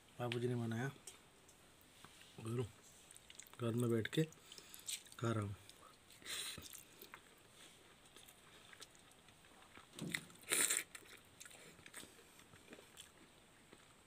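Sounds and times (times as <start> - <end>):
person chewing: 3.1 - 3.6, 4.4 - 14.0
noisy mouthful taken: 10.4 - 11.0.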